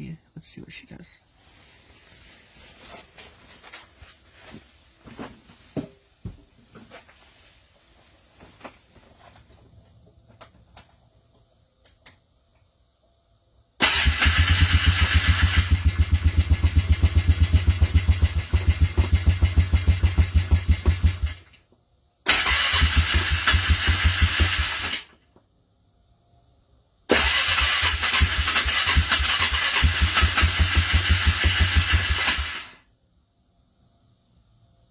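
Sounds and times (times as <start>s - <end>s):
engine cranking on starter motor: 13.8s - 21.6s, 22.3s - 25.2s, 27.1s - 32.8s.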